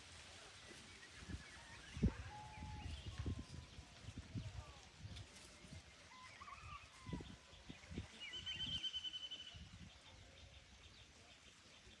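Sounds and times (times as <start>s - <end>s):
birds whistled chirps: 0.8s - 3.8s, 6.1s - 12.0s.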